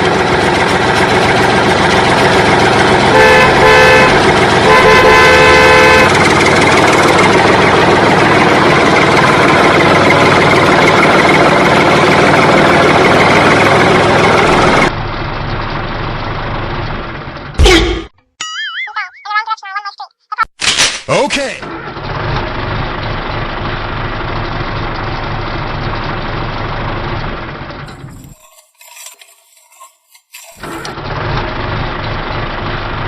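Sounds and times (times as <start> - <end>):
vehicle engine running: 0.0 - 18.1, 21.4 - 33.0
horn honking: 2.8 - 6.7.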